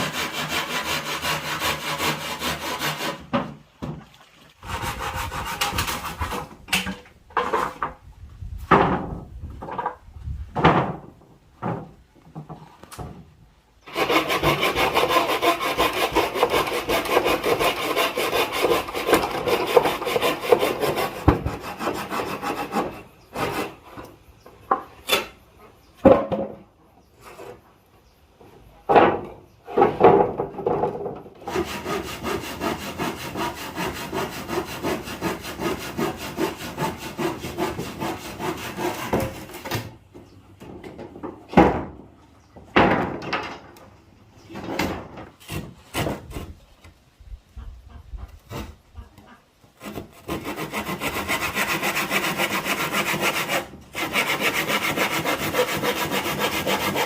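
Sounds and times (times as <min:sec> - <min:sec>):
hand saw cutting wood: 0:00.0 - 0:03.5, 0:04.6 - 0:07.8, 0:13.8 - 0:24.1, 0:31.4 - 0:39.9, 0:45.4 - 0:46.6, 0:48.4 - 0:48.8, 0:49.7 - 0:57.0
sharp wooden knocks: 0:28.9 - 0:31.6, 0:42.6 - 0:43.8.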